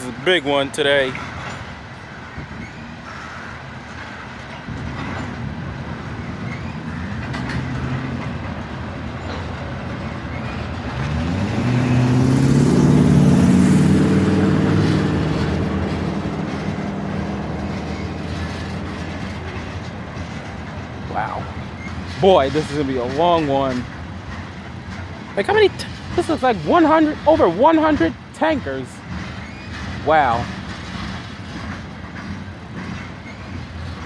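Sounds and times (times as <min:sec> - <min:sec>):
freight train wheels rumbling on rails: 0:00.0 - 0:34.0
droning engine rising in pitch: 0:11.0 - 0:20.2.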